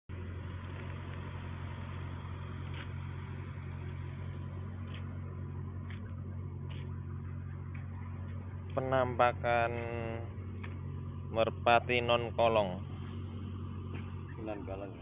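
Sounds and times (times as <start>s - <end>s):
low mechanical hum: 0.1s - 15.0s.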